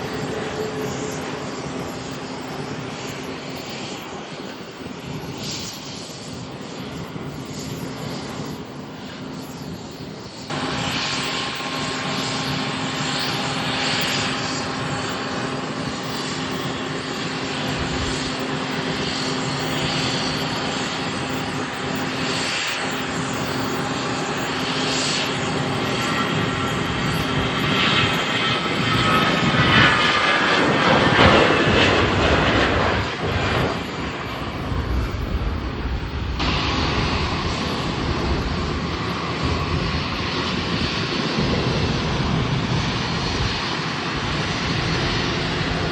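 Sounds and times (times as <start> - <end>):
airliner engines passing by: 0.0 - 45.9.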